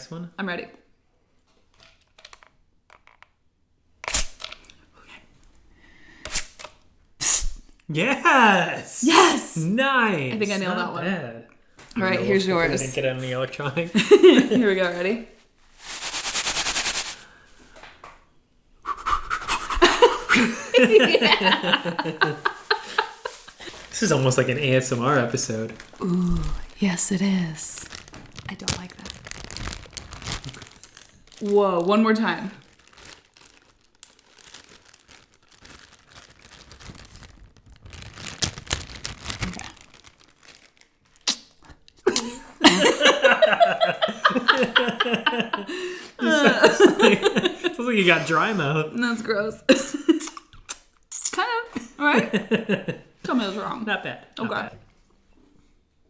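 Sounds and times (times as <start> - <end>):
person making pulsing hiss: 15.8 - 17.4, 18.8 - 20.4
wet mouth clicks: 18.8 - 19.8, 41.2 - 42.0, 50.2 - 51.4
person making rhythmic mouth sounds: 18.8 - 20.4, 41.2 - 41.5, 50.2 - 51.4
breathy voiced noises: 25.5 - 26.8, 45.6 - 46.6.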